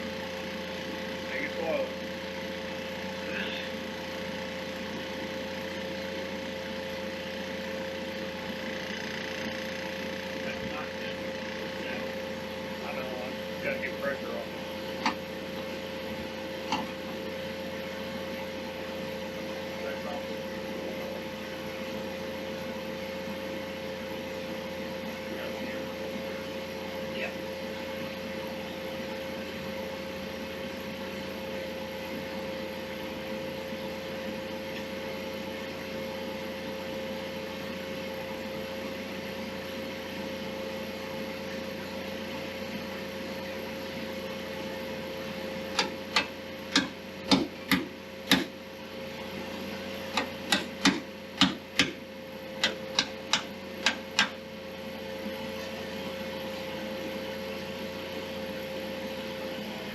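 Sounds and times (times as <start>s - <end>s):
steady workshop hum: 0.0s - 59.9s
sharp knocks: 45.8s - 48.5s, 50.2s - 52.0s.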